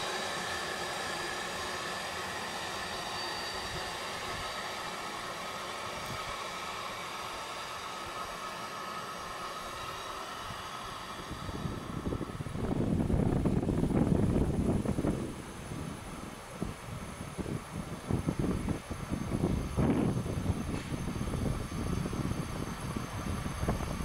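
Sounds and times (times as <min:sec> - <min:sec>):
faint high steady tones: 0:00.0 - 0:13.0
train rumbling away: 0:00.0 - 0:24.0.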